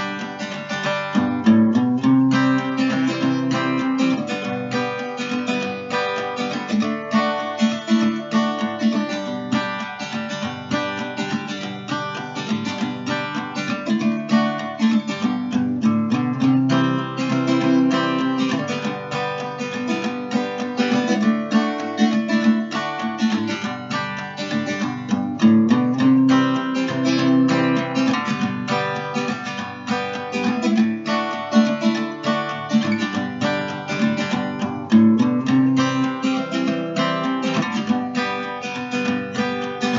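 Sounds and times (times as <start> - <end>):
acoustic guitar plucking and strumming: 0.0 - 39.9.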